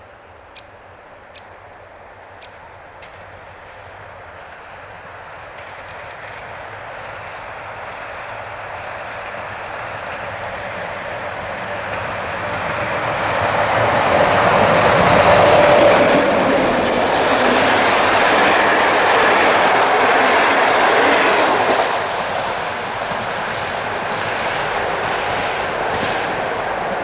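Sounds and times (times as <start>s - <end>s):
train wheels clattering over rail joints: 5.5s - 27.0s.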